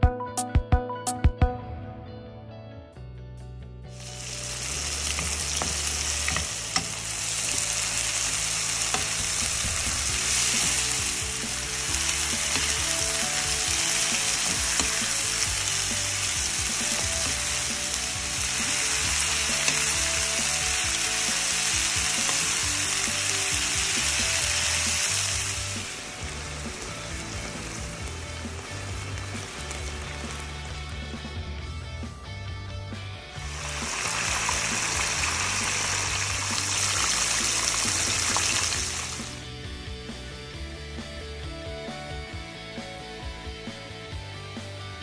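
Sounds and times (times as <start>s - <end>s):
vegetables sizzling in a wok: 3.9s - 31.3s, 33.3s - 40.9s.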